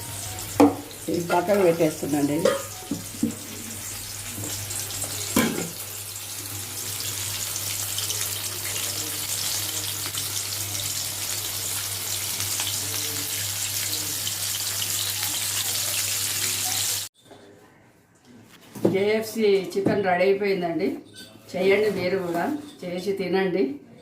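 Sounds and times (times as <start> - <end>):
chicken frying in hot oil: 0.0 - 17.1.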